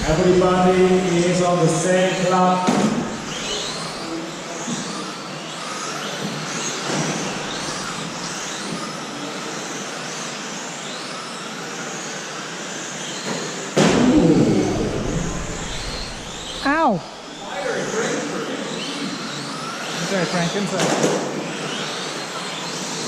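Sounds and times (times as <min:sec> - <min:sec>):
rc trucks motors whining: 0:00.0 - 0:23.0
loud rush of sound: 0:13.8 - 0:17.4.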